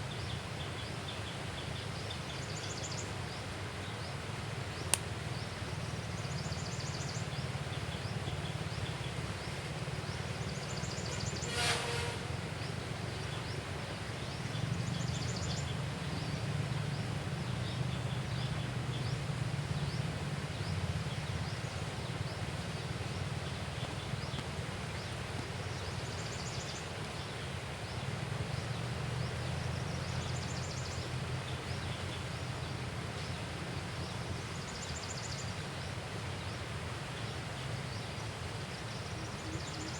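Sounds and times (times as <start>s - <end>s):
bird chirps and trills: 10.5s - 12.8s.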